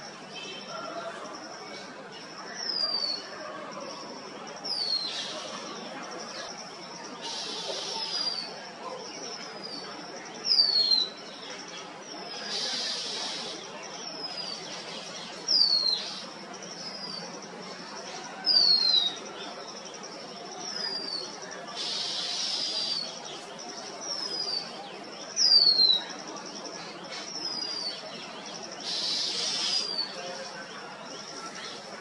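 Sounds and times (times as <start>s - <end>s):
faint higher bird calls: 20.7s - 23.2s, 28.8s - 30.2s.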